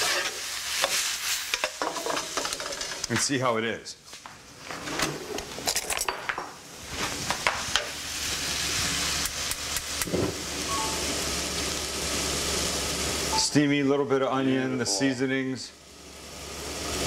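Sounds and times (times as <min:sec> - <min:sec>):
meat sizzling in a wok: 0:00.0 - 0:03.1, 0:06.6 - 0:17.0
metal spoon scraping wok: 0:00.0 - 0:03.1.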